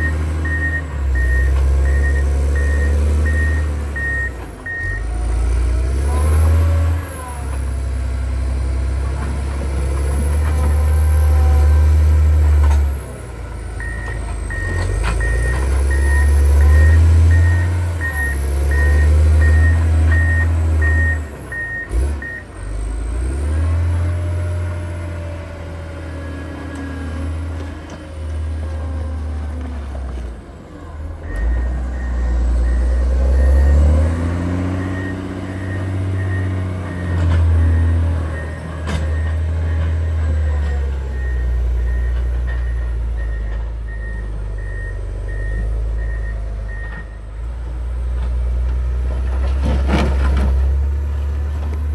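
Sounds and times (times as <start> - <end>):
reverse alarm beeping: 0.0 - 5.0, 13.8 - 22.4, 41.1 - 47.2
diesel engine working: 0.0 - 51.9.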